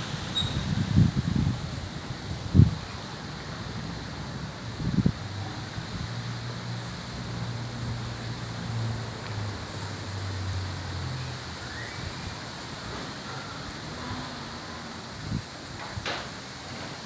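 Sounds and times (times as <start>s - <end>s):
wind blowing over microphone: 0.0s - 8.2s, 14.9s - 16.6s.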